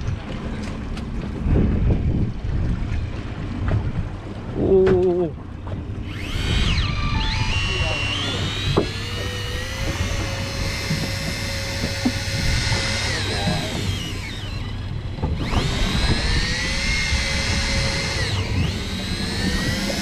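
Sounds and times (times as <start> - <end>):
low rumble: 0.0 - 19.0
motor whining: 5.9 - 20.0.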